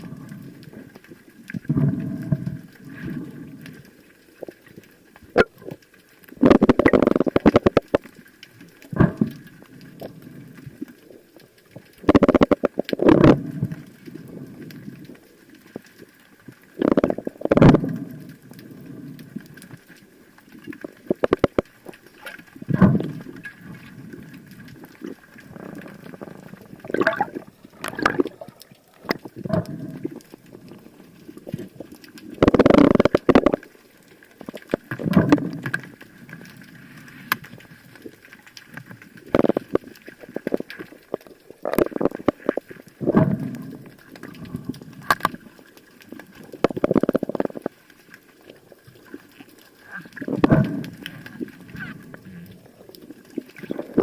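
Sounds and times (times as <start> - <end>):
water gurgling and sloshing: 0.0 - 54.0
scattered clicks: 31.5 - 33.7.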